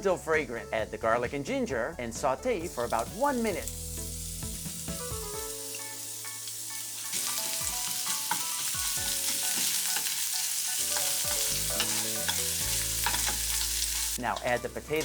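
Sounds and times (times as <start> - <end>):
garlic sizzling in hot oil: 2.6 - 15.0.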